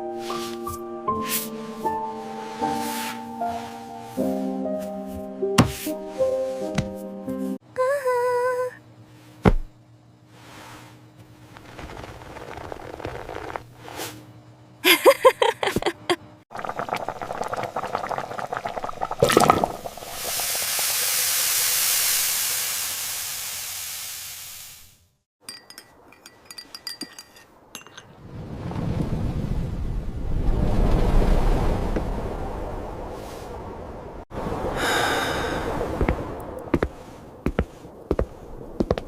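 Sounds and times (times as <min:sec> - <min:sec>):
long hiss: 0:19.9 - 0:25.2, 0:34.8 - 0:36.0
clinks of glass or crockery: 0:25.4 - 0:28.1.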